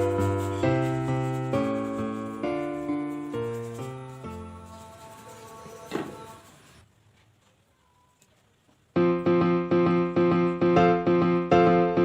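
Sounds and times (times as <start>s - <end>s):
electric piano repeated chords: 0.0s - 4.7s, 8.9s - 12.0s.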